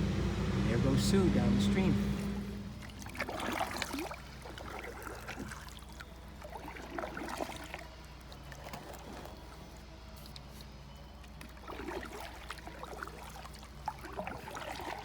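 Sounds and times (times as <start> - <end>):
paddle splashing in water: 1.1 - 15.0.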